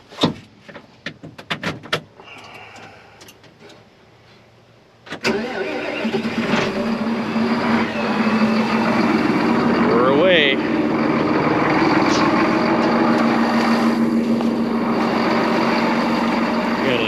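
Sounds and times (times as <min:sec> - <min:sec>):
tractor diesel engine running: 0:02.2 - 0:17.0
faint starter whir: 0:05.1 - 0:17.0.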